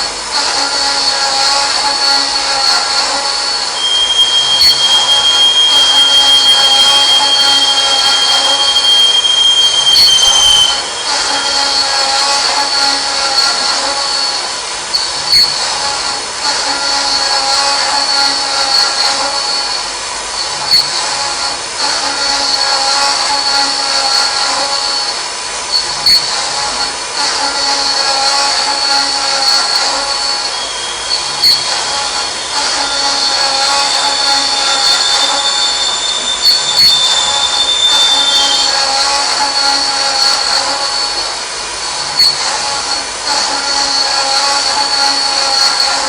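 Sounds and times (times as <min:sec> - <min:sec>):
machine high-pitched whine: 0:00.0 - 0:46.0.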